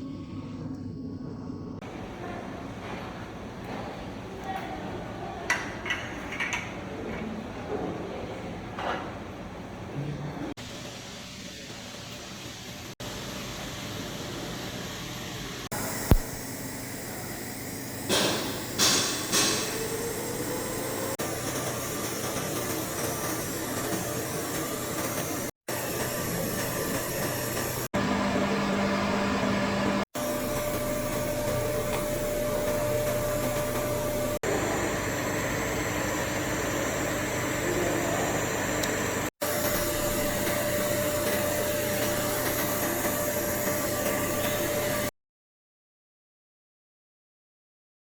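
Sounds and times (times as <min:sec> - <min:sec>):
welding machine hiss and hum: 0:10.6 - 0:27.9, 0:30.2 - 0:45.1.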